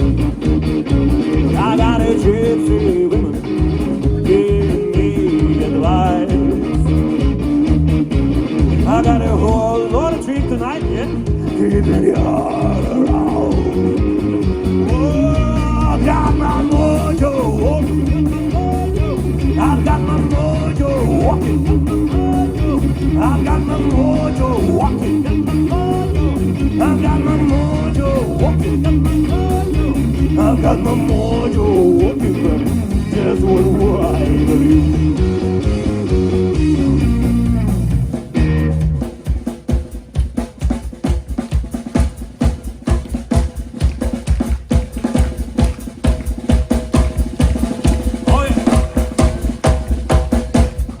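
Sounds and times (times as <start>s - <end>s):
bass notes: 0.0s - 39.4s
sliding lead guitar line: 0.0s - 39.5s
rock band playing: 0.0s - 51.0s.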